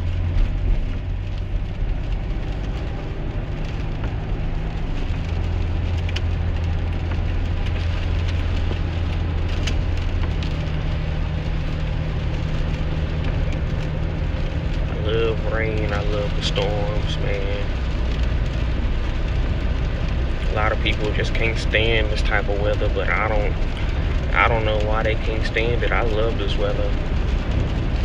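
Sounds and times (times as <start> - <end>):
engine and road drone: 0.0 - 28.0
rain pattering on windshield: 0.0 - 28.0.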